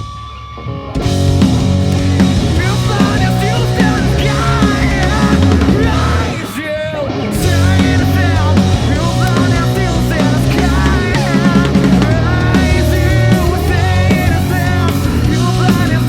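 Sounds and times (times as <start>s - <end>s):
rock band playing loud: 0.0s - 16.0s
wavering lead melody: 7.5s - 15.4s.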